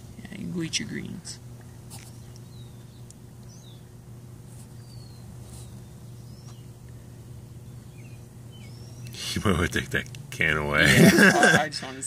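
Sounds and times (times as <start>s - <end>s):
low outdoor background hum: 0.0s - 12.0s
faint bird chirps: 2.1s - 9.3s.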